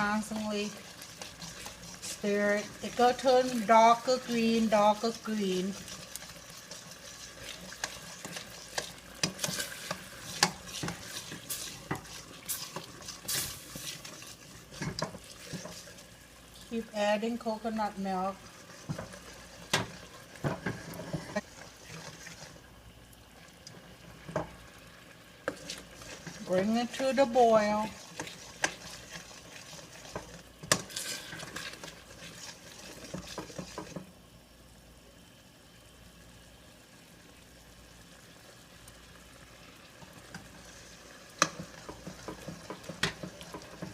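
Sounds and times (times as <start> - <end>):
paste sizzling in a pan: 0.0 - 34.2, 37.0 - 43.9
utensil scraping a pan: 1.0 - 4.6, 5.8 - 16.0, 19.8 - 22.4, 25.4 - 34.0.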